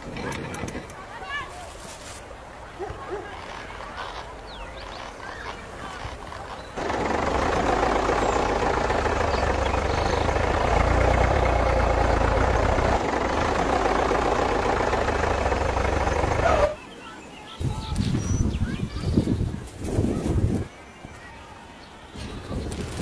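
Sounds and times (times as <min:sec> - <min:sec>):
small motor running: 0:06.8 - 0:16.8.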